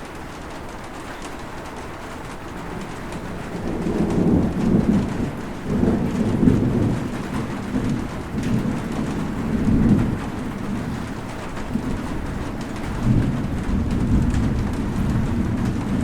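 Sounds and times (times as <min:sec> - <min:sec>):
steady rain falling: 0:00.0 - 0:16.0
low rolling thunder: 0:02.4 - 0:16.0.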